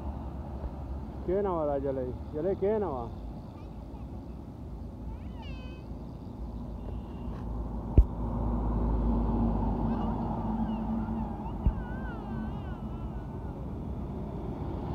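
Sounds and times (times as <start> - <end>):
truck engine rumbling: 0.0 - 14.9
high wavering cry: 9.8 - 13.8.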